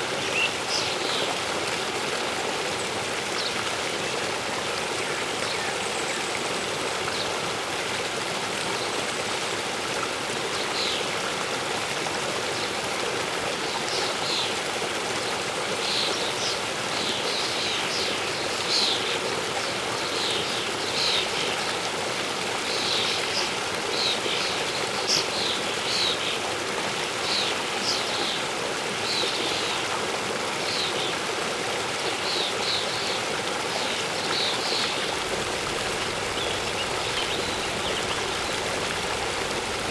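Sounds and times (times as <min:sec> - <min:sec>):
waterfall rushing: 0:33.7 - 0:39.9
small birds chirping: 0:34.3 - 0:39.9.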